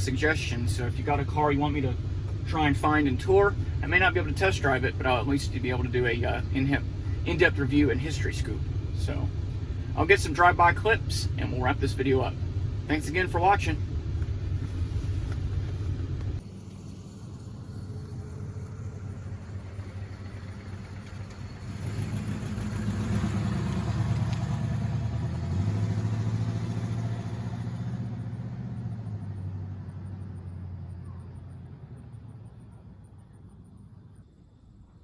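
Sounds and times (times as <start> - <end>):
car engine rumbling: 0.0 - 35.0
car driving past: 13.8 - 34.2.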